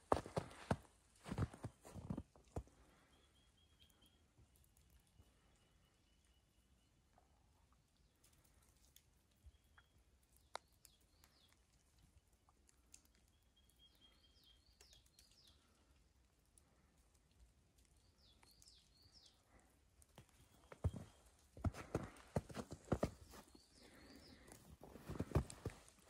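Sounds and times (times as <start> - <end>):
footsteps crunching in snow: 0.0 - 2.2, 20.7 - 26.0
small bird chirping faintly: 3.0 - 25.6.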